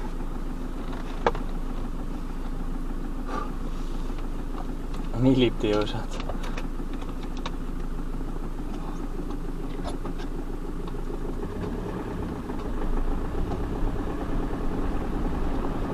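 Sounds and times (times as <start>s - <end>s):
off-road vehicle engine running: 0.0s - 15.9s
light rattles: 4.0s - 11.0s.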